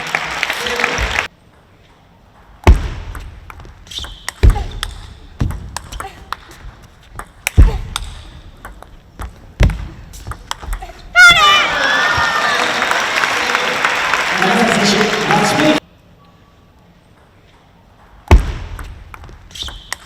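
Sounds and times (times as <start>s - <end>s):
crowd noise: 0.0s - 1.3s, 11.0s - 15.8s
shoe squeak: 3.8s - 4.7s, 19.5s - 20.0s
table tennis ball clicking: 10.2s - 10.8s.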